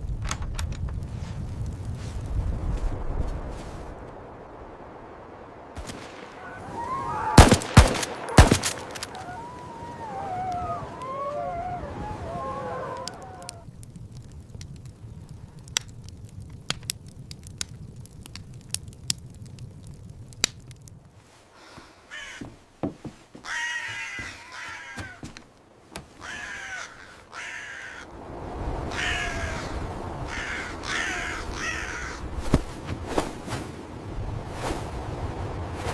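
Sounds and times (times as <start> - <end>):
crow cawing: 6.3 - 13.6, 21.6 - 22.6, 23.4 - 25.4, 26.0 - 28.1, 28.9 - 32.2
sharp clicks and crackles: 7.4 - 9.7, 13.0 - 21.1.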